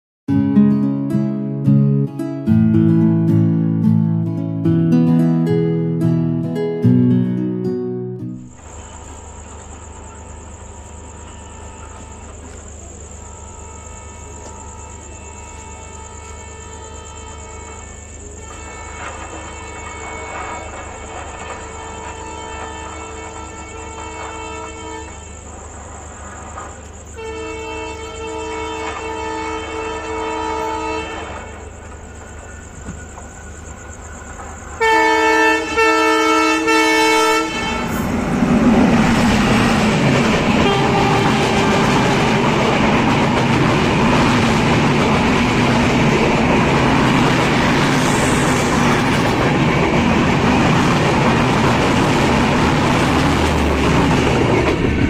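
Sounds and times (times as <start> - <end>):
wheel and rail noise: 8.5 - 55.0
locomotive horn blasts: 11.2 - 12.5, 13.1 - 25.4, 27.2 - 31.7, 34.8 - 38.2, 39.1 - 44.0
train clickety-clack: 17.2 - 55.0.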